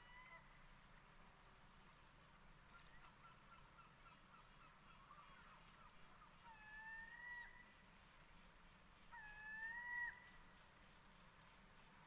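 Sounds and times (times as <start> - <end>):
bird calling: 9.1 - 10.5.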